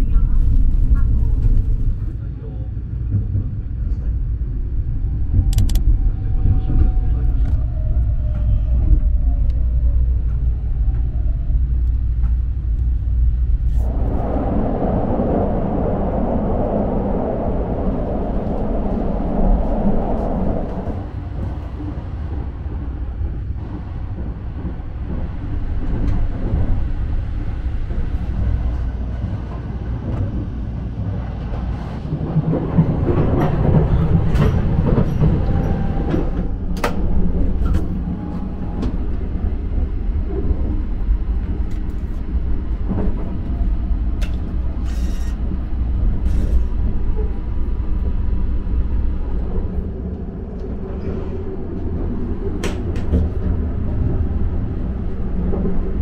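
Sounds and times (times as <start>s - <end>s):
train running rumble: 0.0s - 56.0s.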